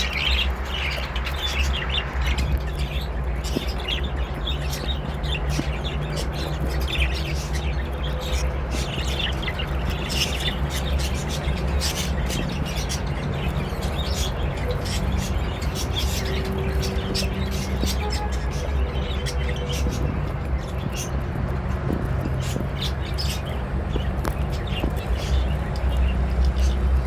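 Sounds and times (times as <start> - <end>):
budgerigars chirping: 0.0 - 27.0.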